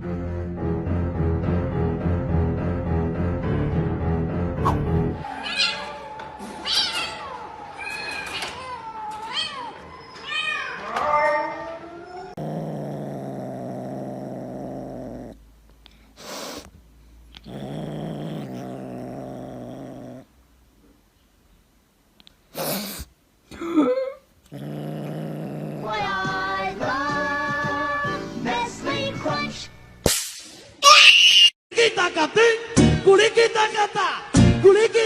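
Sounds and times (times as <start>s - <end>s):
cat growling: 12.2s - 16.7s, 17.3s - 20.4s, 24.4s - 27.0s.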